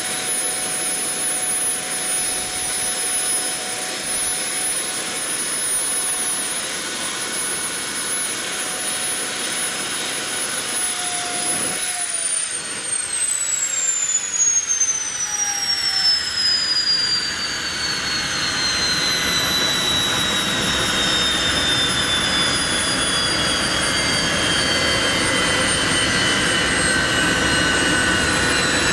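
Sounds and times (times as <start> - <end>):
model jet turbine whine: 0.0 - 28.9.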